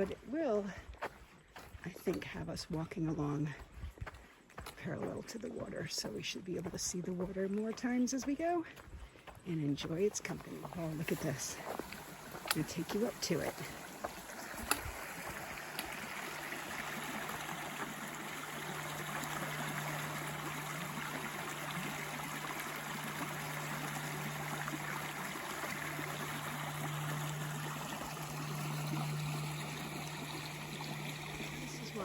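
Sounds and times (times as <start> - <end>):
steady low hum: 10.3 - 32.0
river water flowing: 10.5 - 32.0.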